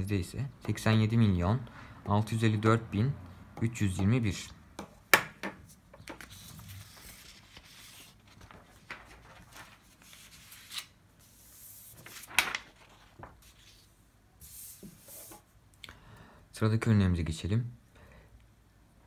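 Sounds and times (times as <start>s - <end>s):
faint rustling and rubbing: 5.7s - 15.6s.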